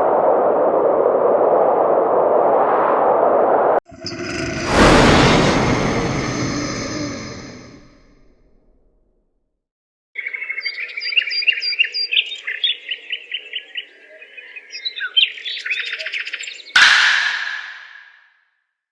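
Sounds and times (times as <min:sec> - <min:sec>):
loud burst of noise: 0:04.0 - 0:08.4.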